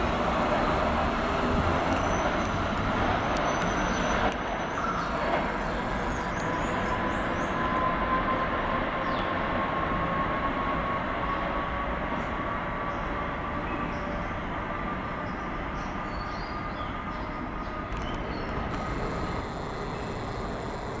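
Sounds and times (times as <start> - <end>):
train wheels rumbling on rail: 0.0 - 21.0
thin high whine: 18.0 - 21.0.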